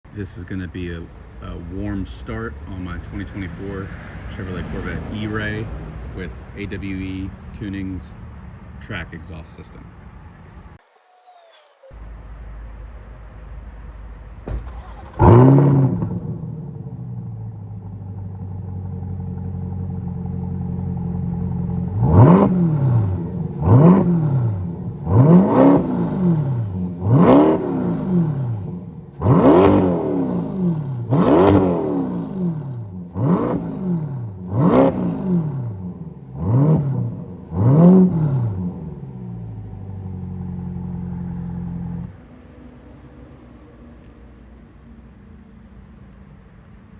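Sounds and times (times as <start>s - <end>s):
car engine idling: 0.1s - 46.9s
engine throttle blips: 14.2s - 42.2s.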